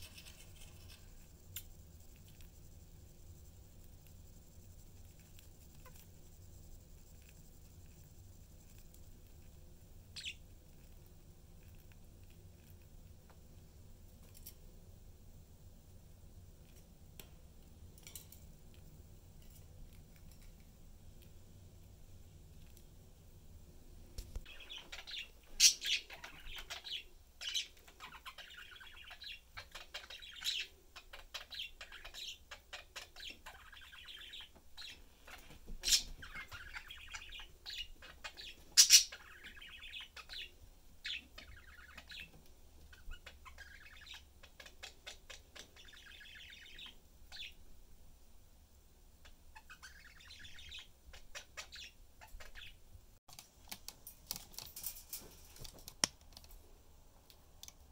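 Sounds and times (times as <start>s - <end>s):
budgerigars chattering: 24.5s - 42.3s, 42.9s - 47.6s, 49.2s - 52.8s.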